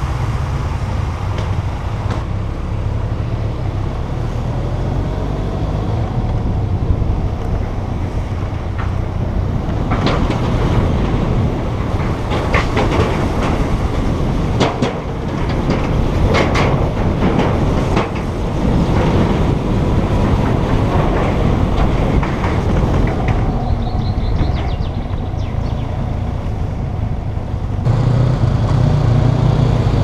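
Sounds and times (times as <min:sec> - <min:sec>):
motorcycle engine and road rumble: 0:00.0 - 0:30.0
clattering knocks and clicks: 0:07.4 - 0:26.0.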